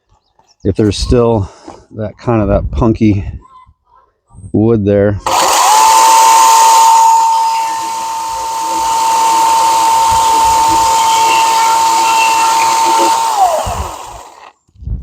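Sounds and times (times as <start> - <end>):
chainsaw cutting wood: 5.2 - 14.7.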